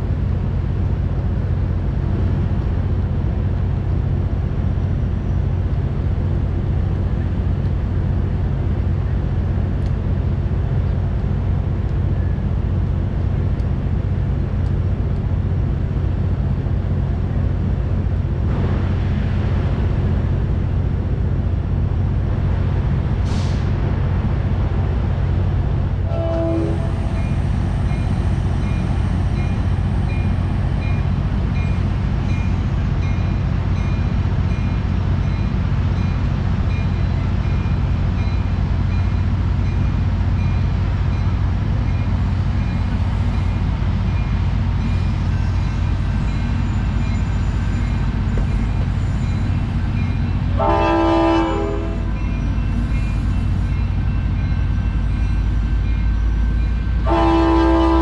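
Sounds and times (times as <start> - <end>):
diesel train rumble: 0.0 - 58.0
locomotive horn blast: 26.0 - 27.3, 50.6 - 52.3, 57.0 - 58.0.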